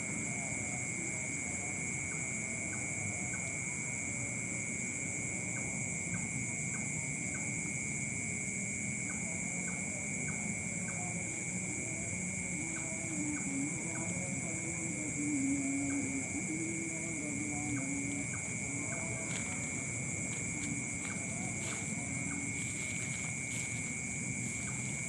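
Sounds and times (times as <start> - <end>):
night insects chirring: 0.0 - 25.0
low wavering hum: 9.1 - 25.0.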